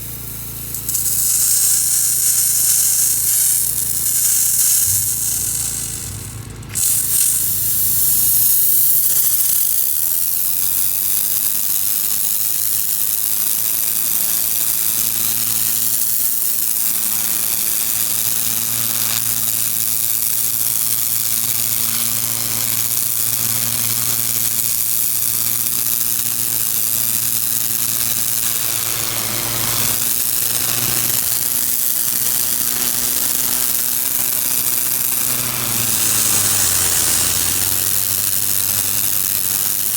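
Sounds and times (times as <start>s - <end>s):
pressure washer engine running: 0.0s - 39.9s
pressure washer water jet hissing: 0.0s - 39.9s.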